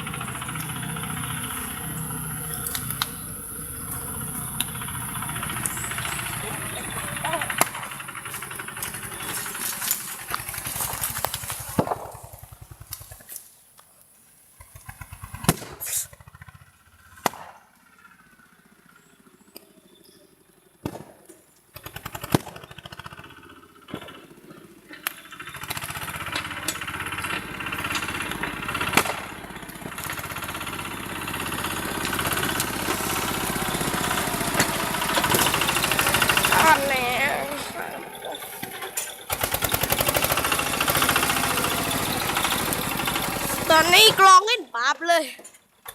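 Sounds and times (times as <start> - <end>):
tractor engine running: 0.0 - 20.8, 21.5 - 45.9
sharp cracks: 7.5 - 13.5, 17.1 - 17.9, 27.8 - 36.6.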